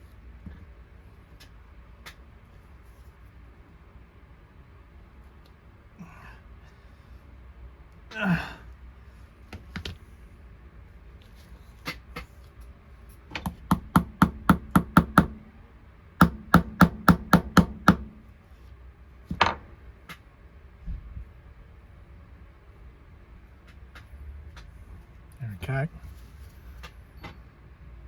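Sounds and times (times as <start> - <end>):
small hammer tapping metal: 13.4 - 15.4.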